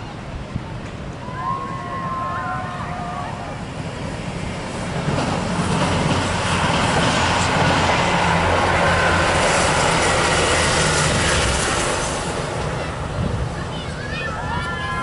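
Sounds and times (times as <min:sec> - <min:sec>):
train engine drone: 0:00.0 - 0:15.0
train wheels on rails: 0:03.5 - 0:15.0.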